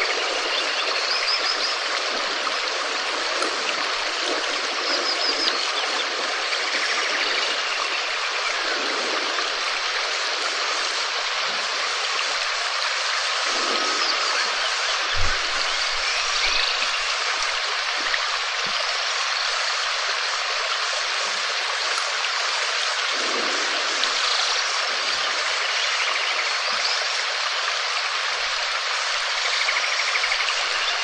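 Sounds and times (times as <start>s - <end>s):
heavy rain falling: 0.0s - 26.7s
short low thump: 15.1s - 16.6s.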